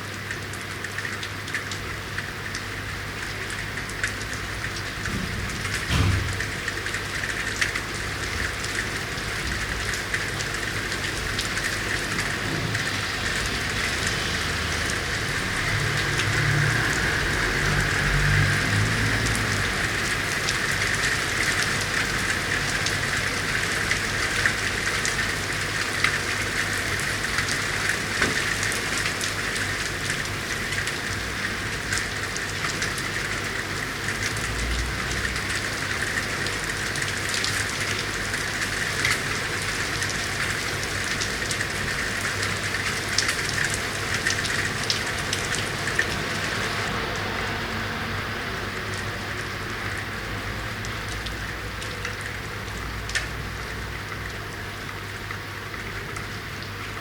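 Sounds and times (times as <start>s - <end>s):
rain hissing on street: 0.0s - 57.0s
raindrops ticking: 49.8s - 57.0s.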